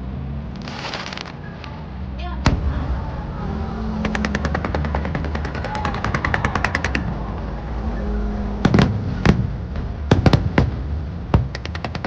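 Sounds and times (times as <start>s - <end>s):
low rumble: 0.0s - 11.7s
fireworks crackling: 0.5s - 1.4s, 8.6s - 12.0s
fireworks bangs: 2.4s - 12.0s.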